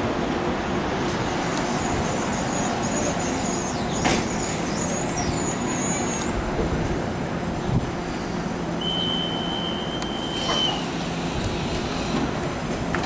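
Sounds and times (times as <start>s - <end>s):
trains rolling rumble: 0.0s - 13.0s
wheel squeals: 8.8s - 11.0s.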